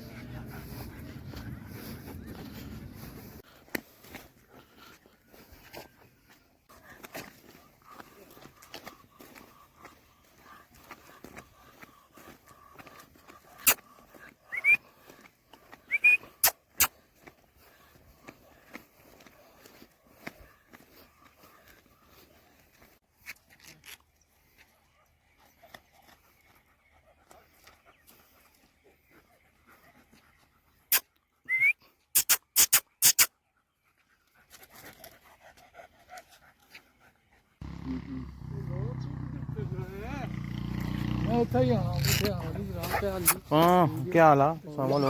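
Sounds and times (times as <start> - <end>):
short rising whistles: 15.9 - 16.5, 31.4 - 32.7.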